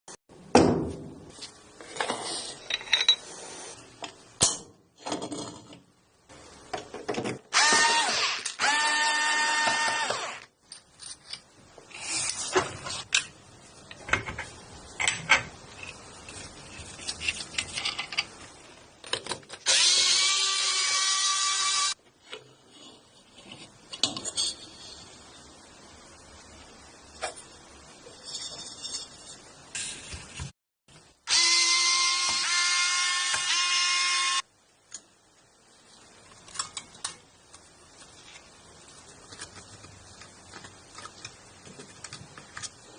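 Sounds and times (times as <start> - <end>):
power drill whining: 7.5 - 10.5, 31.3 - 34.4.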